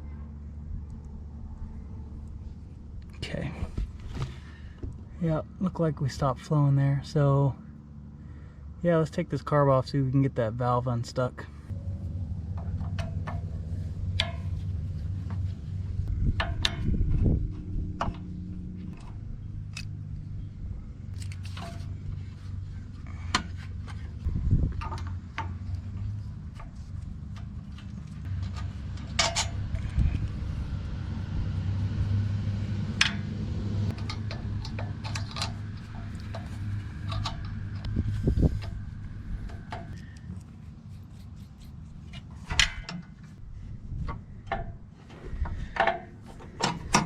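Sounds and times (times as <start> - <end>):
steady low hum: 0.0 - 47.0
sharp clicks and knocks: 33.9 - 40.2, 41.5 - 43.4, 45.4 - 47.0.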